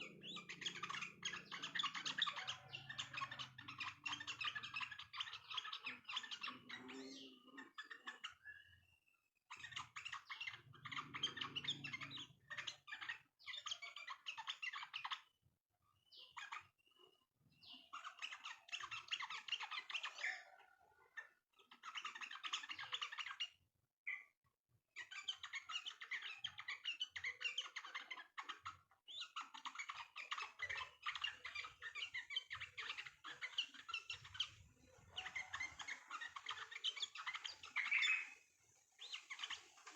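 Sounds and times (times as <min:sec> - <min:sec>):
birds chattering song: 0:00.0 - 0:24.4, 0:25.0 - 0:39.9.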